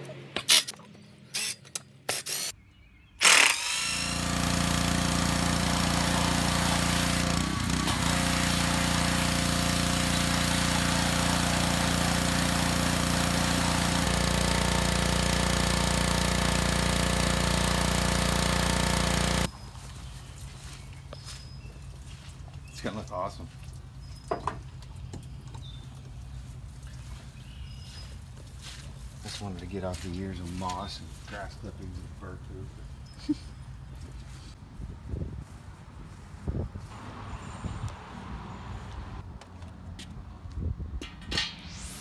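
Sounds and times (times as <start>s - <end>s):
cordless drill bursts: 1.3s - 2.5s, 3.2s - 19.5s
pressure washer spraying: 3.3s - 19.5s.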